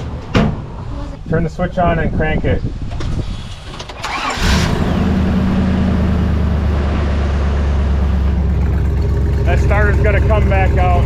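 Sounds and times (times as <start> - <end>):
truck engine starting and idling: 3.1 - 11.0.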